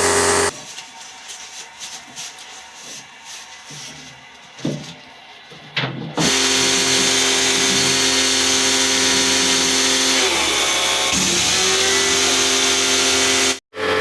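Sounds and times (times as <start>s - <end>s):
pressure washer motor hum: 0.0s - 0.5s.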